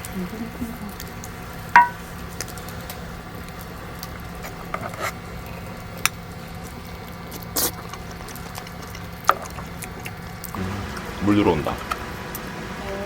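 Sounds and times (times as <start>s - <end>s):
steady low hum: 0.0s - 13.0s
clicks and knocks of dishes: 1.8s - 2.0s.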